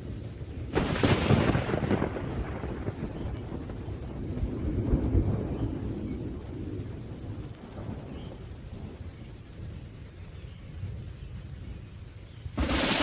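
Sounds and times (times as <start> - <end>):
faint rain hiss: 0.0 - 13.0
thunder rumbling low: 0.7 - 9.0, 12.5 - 13.0.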